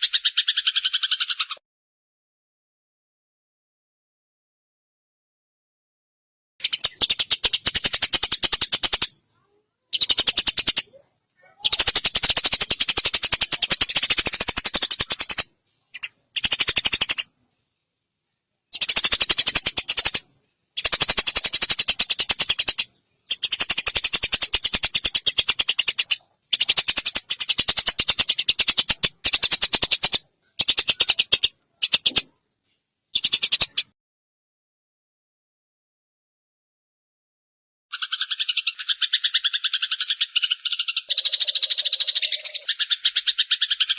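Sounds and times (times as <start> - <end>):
sparrows chattering: 0.0 - 1.6, 6.6 - 17.3, 18.7 - 32.3, 33.2 - 33.9, 37.9 - 43.9.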